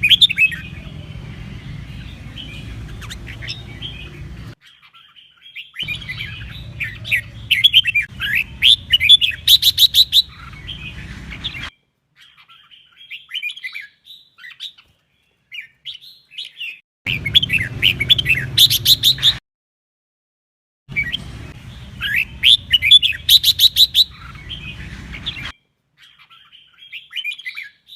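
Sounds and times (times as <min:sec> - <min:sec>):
bulbul warbling song: 0:00.0 - 0:04.8, 0:05.6 - 0:11.7, 0:17.1 - 0:19.4, 0:20.9 - 0:25.5.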